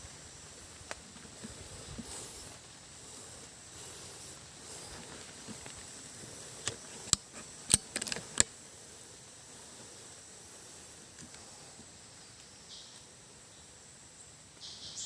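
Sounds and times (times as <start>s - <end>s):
steady background hiss: 0.0s - 15.0s
sharp clicks and snaps: 6.6s - 8.6s.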